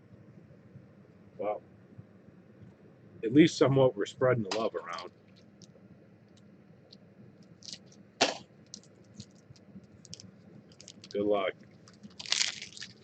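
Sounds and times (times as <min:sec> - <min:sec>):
card packs and wrappers rustling: 0:08.7 - 0:13.0.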